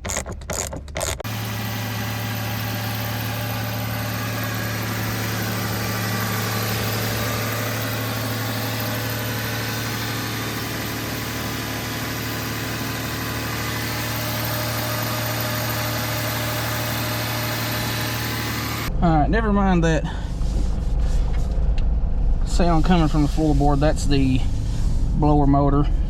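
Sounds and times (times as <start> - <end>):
car engine idling: 1.2 - 26.0.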